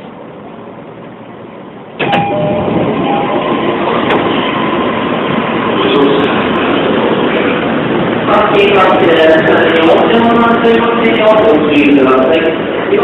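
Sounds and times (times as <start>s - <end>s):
train doors opening: 0.0s - 8.2s
station platform noise: 0.0s - 13.0s
train door click: 2.0s - 4.5s.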